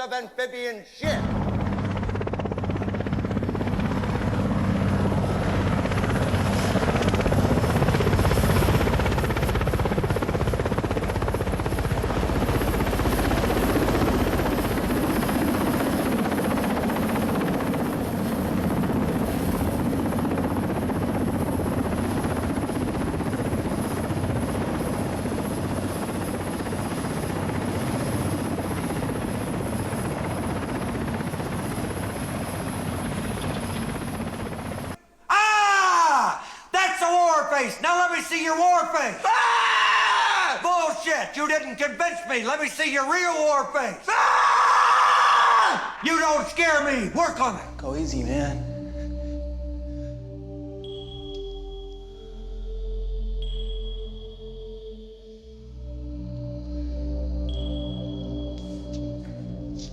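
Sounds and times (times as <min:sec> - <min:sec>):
low hum: 0:01.0 - 0:26.0, 0:47.5 - 0:59.9.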